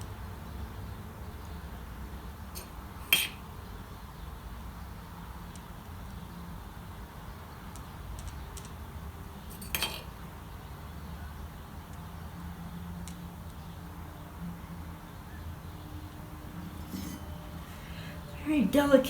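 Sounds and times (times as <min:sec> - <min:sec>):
sharp metallic clink: 0:02.6 - 0:03.5, 0:09.5 - 0:10.2, 0:16.6 - 0:17.6
low room hum: 0:11.9 - 0:19.0.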